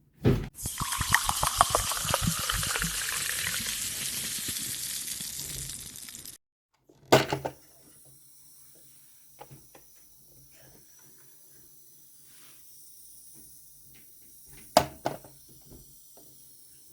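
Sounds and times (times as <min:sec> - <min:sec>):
water running: 0:00.6 - 0:06.4.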